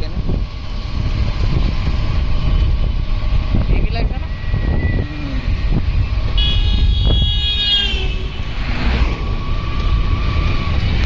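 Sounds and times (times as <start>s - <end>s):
motor vehicle rumble: 0.0s - 11.0s
high horn toot: 6.3s - 8.6s.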